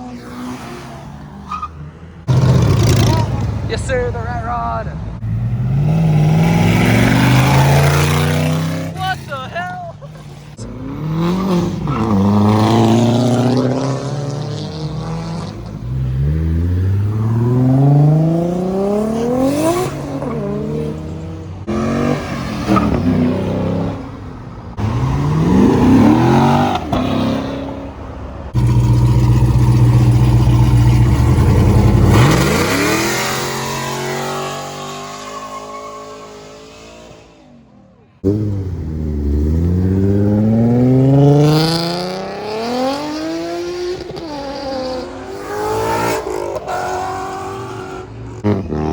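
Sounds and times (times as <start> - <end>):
car engines revving: 0.0 - 48.9.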